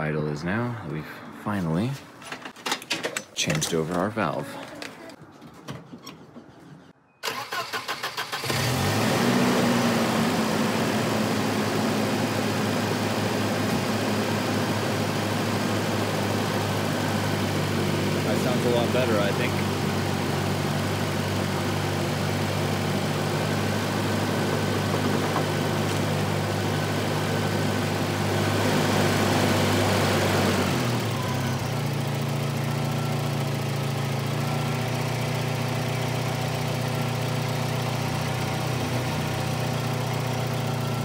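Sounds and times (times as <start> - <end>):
car engine idling: 9.9 - 29.7, 30.7 - 41.0.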